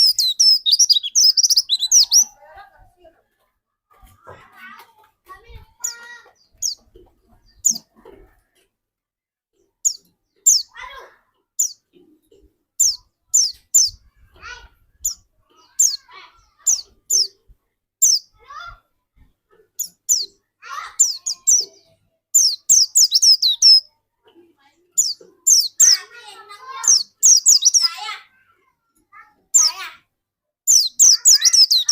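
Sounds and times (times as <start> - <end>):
bird singing high chirps: 0.0 - 2.4, 9.8 - 10.8, 11.6 - 11.8, 12.8 - 14.0, 18.0 - 18.3, 19.8 - 20.4, 21.0 - 23.9, 25.0 - 26.1, 26.8 - 28.1, 30.7 - 31.9.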